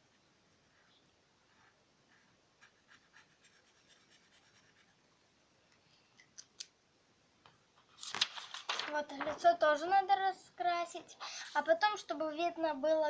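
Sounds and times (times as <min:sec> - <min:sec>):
marker scratching on paper: 0:01.5 - 0:05.0.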